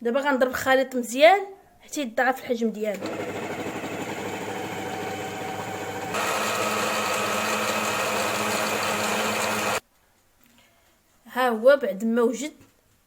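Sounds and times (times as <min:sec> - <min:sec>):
electric mixer running: 0:03.0 - 0:09.8.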